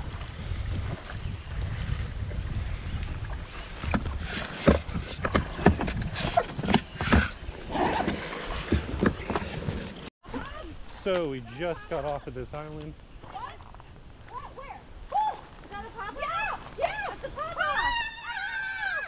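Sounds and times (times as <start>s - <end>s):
paddle knocks and splashes: 0.0s - 10.1s
wind on microphone: 0.0s - 10.1s.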